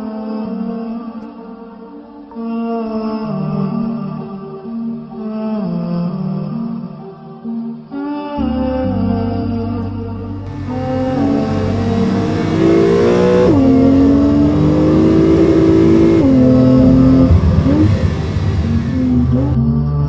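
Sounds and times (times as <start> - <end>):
sports car engine accelerating: 10.4 - 19.6.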